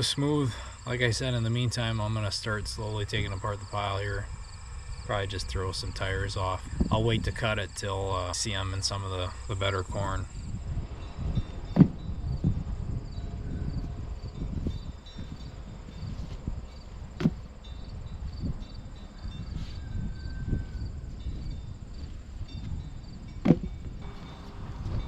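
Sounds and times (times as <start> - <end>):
crickets chirping: 0.0 - 25.0
low rumble: 2.7 - 25.0
tires thumping: 11.4 - 12.9, 16.1 - 17.9, 23.3 - 24.3.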